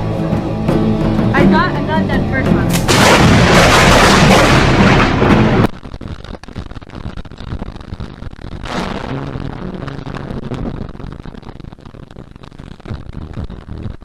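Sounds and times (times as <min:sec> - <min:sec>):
crackling noise: 0:01.1 - 0:14.0
thunder crack: 0:02.7 - 0:05.7.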